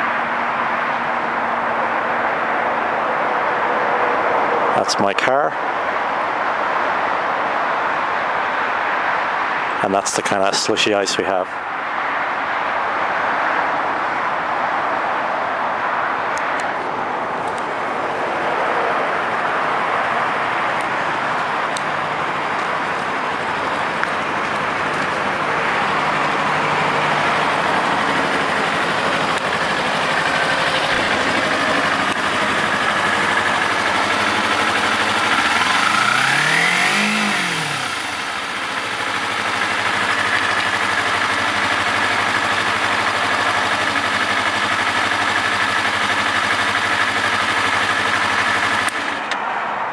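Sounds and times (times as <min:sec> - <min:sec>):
noisy background: 0:09.2 - 0:13.0
vehicle engine revving: 0:18.4 - 0:49.4.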